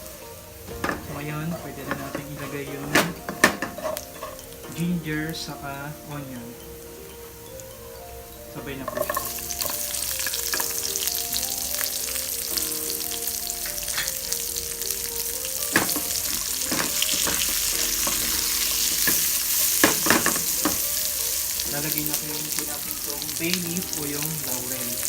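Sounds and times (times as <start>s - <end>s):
food sizzling in hot oil: 0.0s - 25.0s
spoon knocking against pan: 0.7s - 4.6s, 8.8s - 10.9s, 15.6s - 21.0s.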